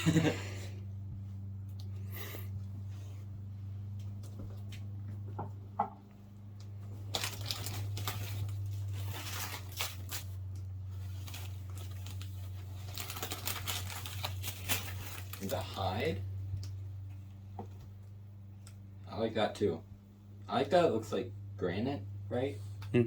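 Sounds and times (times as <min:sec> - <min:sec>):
low electrical hum: 0:00.0 - 0:23.0
packaging being torn and crinkled: 0:07.1 - 0:16.1.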